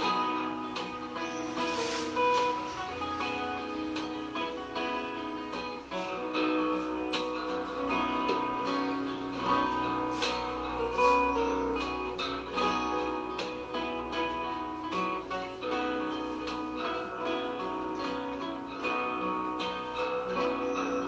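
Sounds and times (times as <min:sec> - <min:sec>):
guitar background music: 0:00.0 - 0:21.0.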